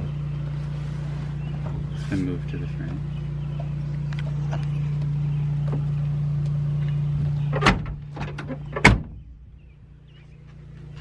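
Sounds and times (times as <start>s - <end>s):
vehicle engine humming: 0.0s - 11.0s
truck door slamming: 7.3s - 9.5s.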